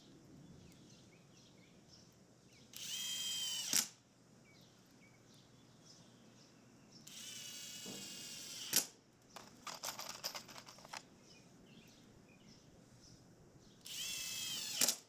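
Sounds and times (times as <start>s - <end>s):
cordless drill whining: 2.8s - 3.9s, 7.1s - 8.8s, 13.9s - 15.0s.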